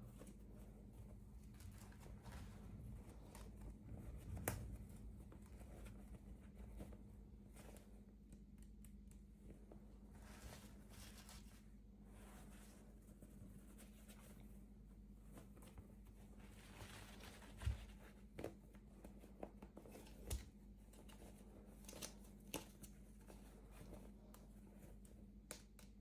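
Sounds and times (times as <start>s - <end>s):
faint steady hum: 0.0s - 26.0s
light taps and clicks: 7.6s - 9.6s.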